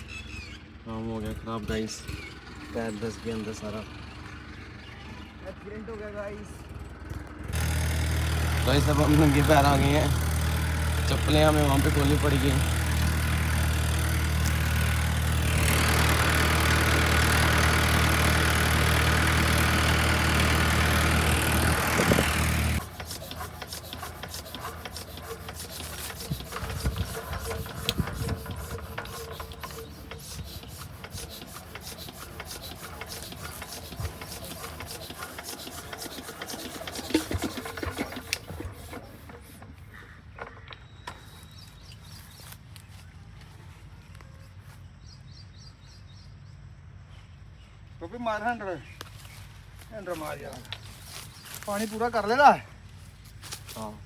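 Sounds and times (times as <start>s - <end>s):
engine idling: 0.8s - 40.7s
rubbing and scraping: 20.4s - 39.8s.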